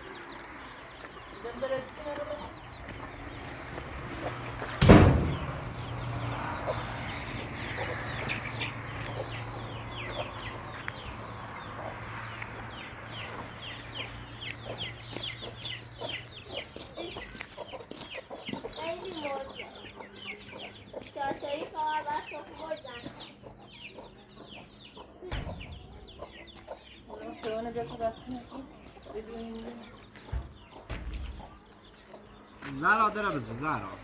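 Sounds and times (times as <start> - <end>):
chickens clucking and cheeping: 0.0 - 34.0
sudden loud thump: 4.8 - 6.0.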